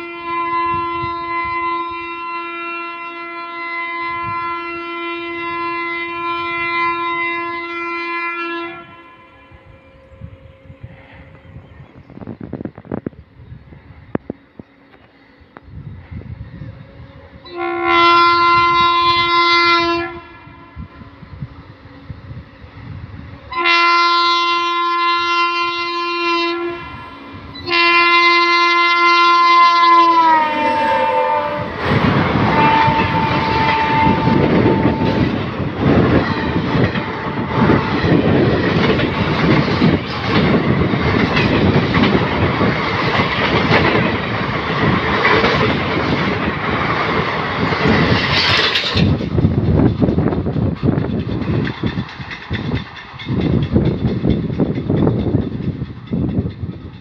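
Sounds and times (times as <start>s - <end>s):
locomotive horn blasts: 0.0s - 11.4s, 17.4s - 21.5s, 23.4s - 38.4s
train coaches clattering by: 8.8s - 19.7s, 21.0s - 57.0s.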